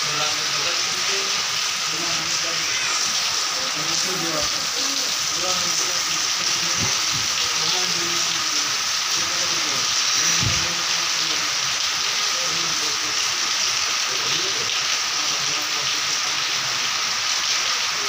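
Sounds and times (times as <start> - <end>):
heavy rain hissing: 0.0 - 18.0
water streaming off roofs: 0.0 - 18.0.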